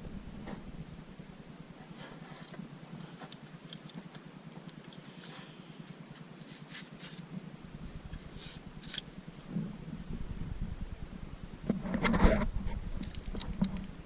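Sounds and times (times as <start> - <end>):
low rumble: 0.0 - 1.8, 7.3 - 14.0
steady low hum: 0.0 - 14.0
hands clicking and rustling hoses: 1.9 - 7.2, 13.0 - 14.0.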